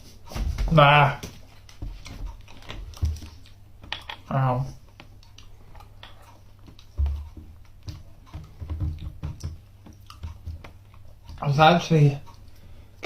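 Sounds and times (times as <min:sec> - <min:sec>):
soft low thumps: 0:06.7 - 0:11.4.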